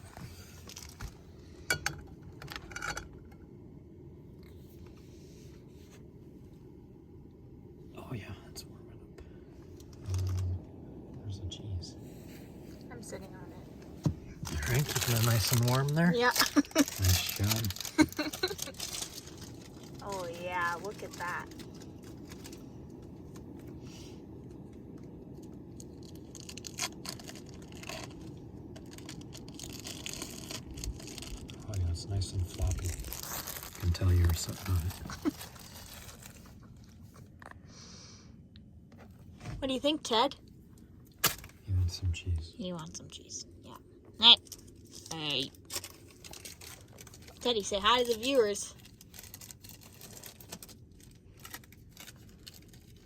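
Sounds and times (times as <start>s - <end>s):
steady low rumble: 0.0s - 53.0s
plastic crinkling: 0.3s - 1.2s, 9.9s - 10.5s, 14.4s - 23.6s, 25.4s - 37.4s, 44.4s - 53.0s.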